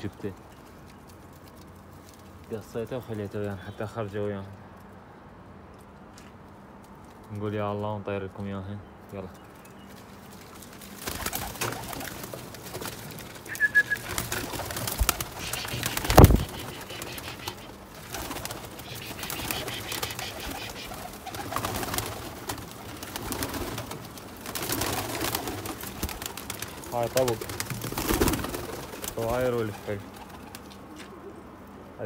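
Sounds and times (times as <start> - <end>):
wing flaps and rustles: 9.5 - 31.4
pigeons cooing: 11.0 - 32.0.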